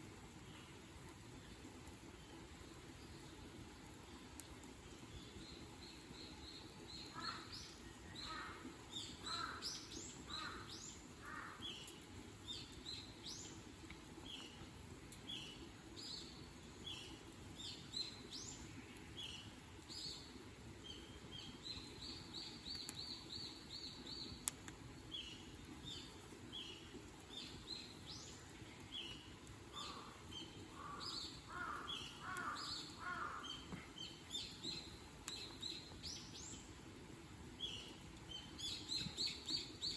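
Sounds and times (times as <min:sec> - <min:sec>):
small birds chirping: 0:00.3 - 0:36.8, 0:37.5 - 0:39.9.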